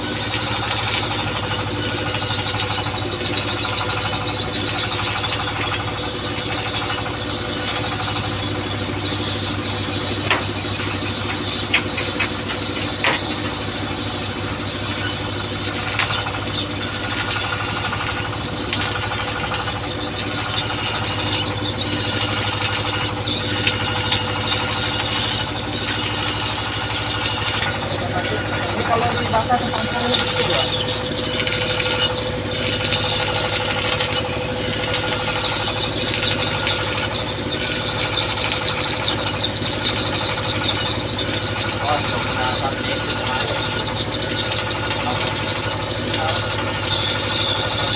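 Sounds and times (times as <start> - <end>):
engine humming: 0.0 - 47.9.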